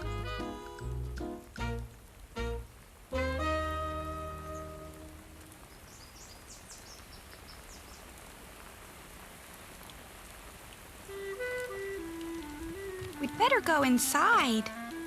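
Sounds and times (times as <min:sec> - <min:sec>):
music chord: 0:00.0 - 0:05.5
cartoon rain falling: 0:00.0 - 0:15.0.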